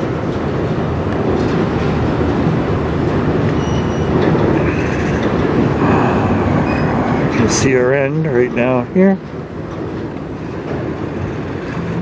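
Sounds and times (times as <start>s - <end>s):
train wheels rumbling on rails: 0.0s - 12.0s
faint high squeal: 3.6s - 5.2s.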